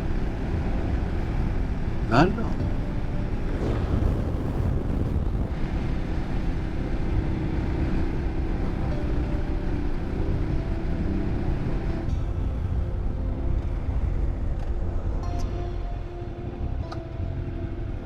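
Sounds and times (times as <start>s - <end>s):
wind noise on microphone: 0.0s - 18.0s.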